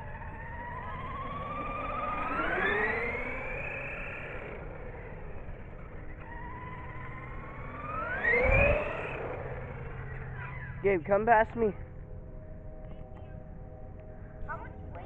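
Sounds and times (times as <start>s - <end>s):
rc car motor whining: 0.0s - 10.9s.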